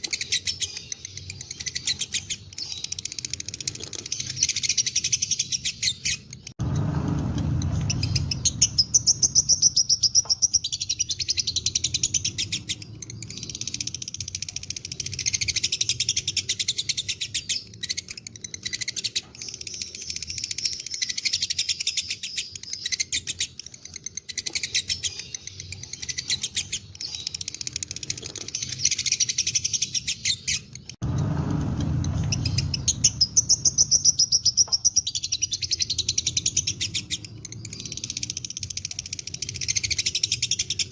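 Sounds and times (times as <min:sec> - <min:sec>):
lovebirds trilling: 0:00.0 - 0:40.9
low rumble: 0:06.6 - 0:09.9, 0:31.0 - 0:34.2.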